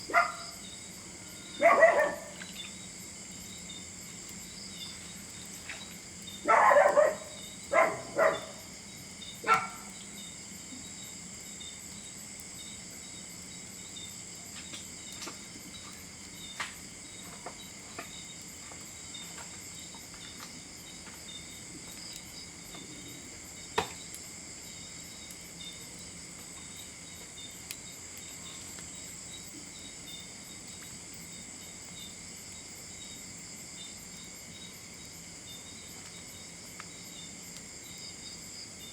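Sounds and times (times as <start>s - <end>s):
crickets chirring: 0.0s - 38.9s
dog barking: 0.1s - 0.5s, 1.6s - 2.4s, 6.4s - 8.6s, 9.4s - 9.9s.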